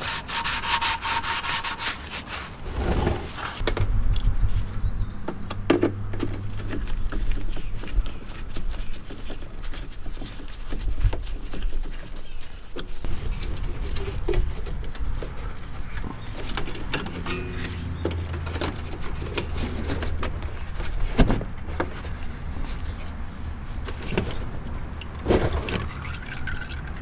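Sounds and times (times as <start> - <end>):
clicks and knocks of hand work: 5.3 - 22.3.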